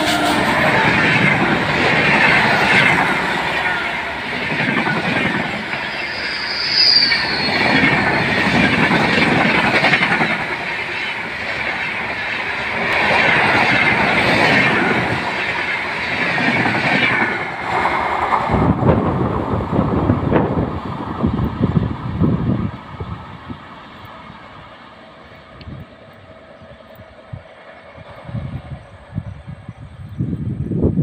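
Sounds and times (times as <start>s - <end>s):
dull uneven train rumble: 0.0s - 31.0s
train wheels rushing on rails: 0.0s - 31.0s
wheel squeal on curve: 5.7s - 8.6s.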